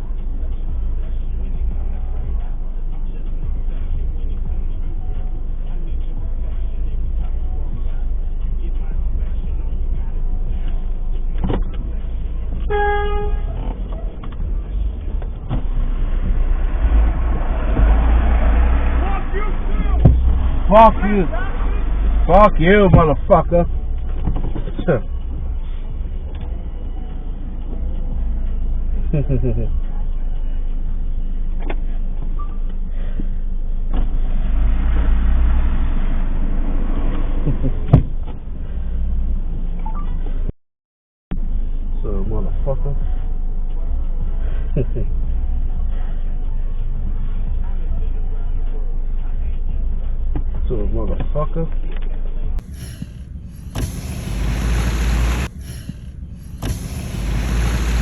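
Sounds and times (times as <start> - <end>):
vehicle engine and road rumble: 0.0 - 40.5, 41.3 - 58.0
car horn beep: 12.6 - 14.1.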